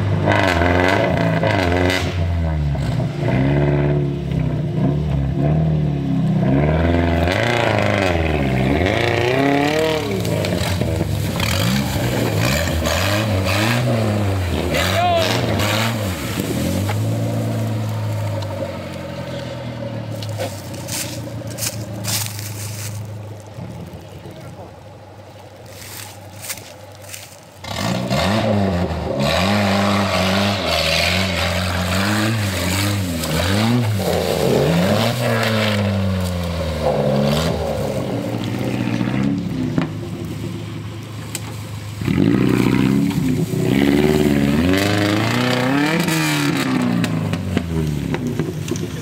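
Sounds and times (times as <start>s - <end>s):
car engine revving hard: 0.0s - 19.4s, 27.6s - 39.9s, 42.0s - 48.8s
tyres scrabbling and scraping: 14.6s - 28.0s.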